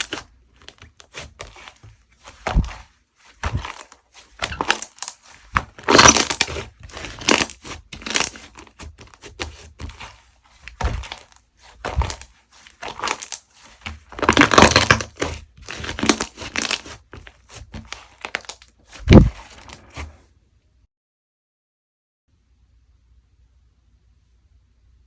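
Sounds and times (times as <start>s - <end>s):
slime squelching: 0.0s - 20.2s.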